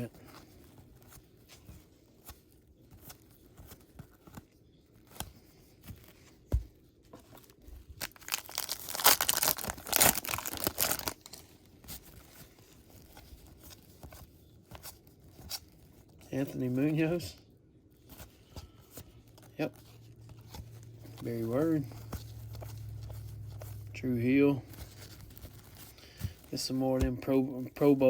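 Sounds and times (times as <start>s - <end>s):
wrapper tearing and crinkling: 7.9s - 11.5s.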